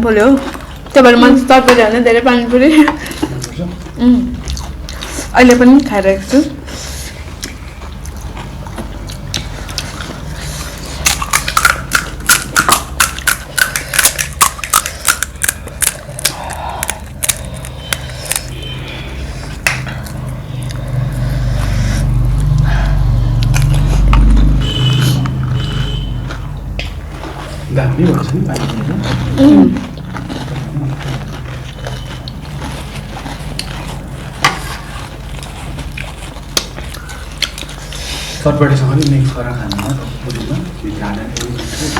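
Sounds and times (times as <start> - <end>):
steady low hum: 0.0 - 41.9
crunchy chewing: 3.0 - 6.0, 6.6 - 41.9.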